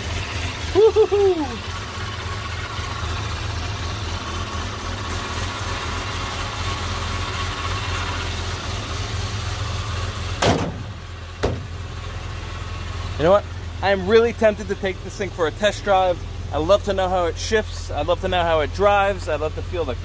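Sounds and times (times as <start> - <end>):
car engine idling: 0.0 - 20.0
sharp thump: 10.4 - 11.8.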